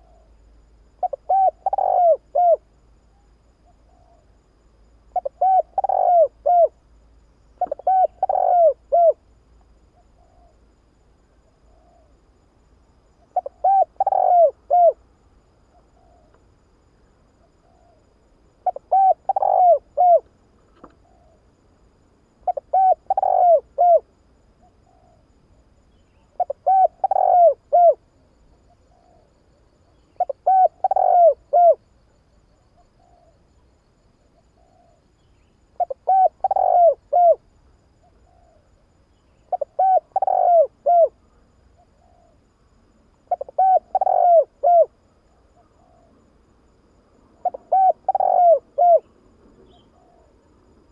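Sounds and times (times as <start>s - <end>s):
dove cooing: 0.0s - 0.4s, 1.0s - 2.7s, 5.2s - 6.8s, 7.6s - 9.2s, 13.3s - 15.0s, 18.6s - 21.4s, 22.4s - 24.0s, 24.6s - 25.3s, 26.3s - 28.0s, 28.7s - 29.4s, 30.0s - 31.8s, 32.8s - 33.4s, 34.4s - 35.0s, 35.8s - 37.4s, 38.0s - 38.7s, 39.5s - 41.2s, 41.8s - 42.4s, 43.3s - 44.9s, 45.6s - 46.2s, 47.4s - 50.4s.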